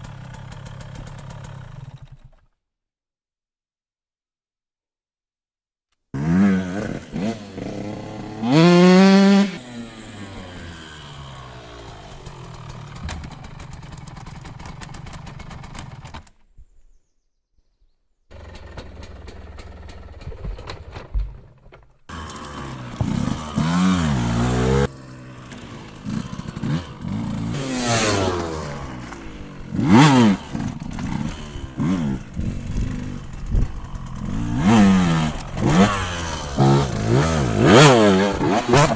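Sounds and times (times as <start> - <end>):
motocross bike engine revving: 6.2 - 16.2, 22.1 - 38.9.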